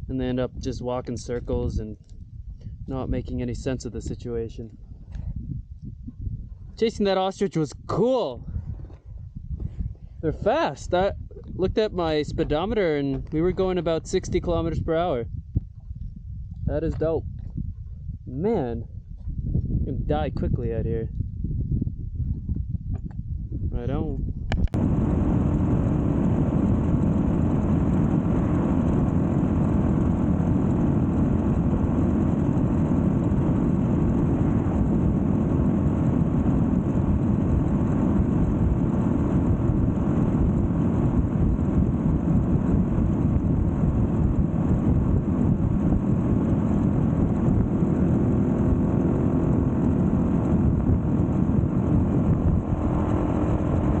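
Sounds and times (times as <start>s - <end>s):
wind and road noise: 0.0s - 54.0s
motorcycle engine running: 24.6s - 54.0s.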